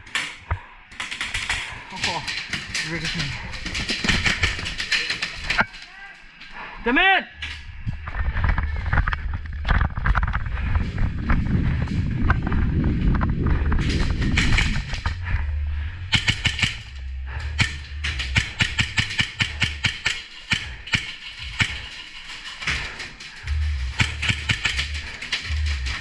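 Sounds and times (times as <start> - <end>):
airsoft guns firing: 0.9 - 5.6, 16.1 - 22.8, 23.5 - 26.0
wind rumble on microphone: 7.4 - 19.7.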